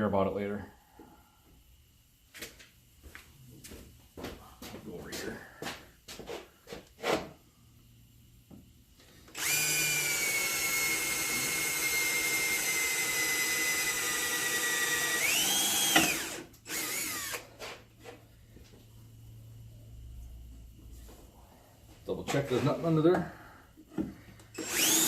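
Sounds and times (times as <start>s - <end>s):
electric drill whining: 9.3s - 17.6s, 24.5s - 25.0s.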